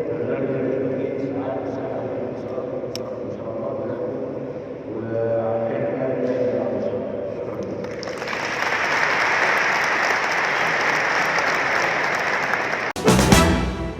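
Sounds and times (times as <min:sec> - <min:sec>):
audience applauding: 0:08.0 - 0:13.8.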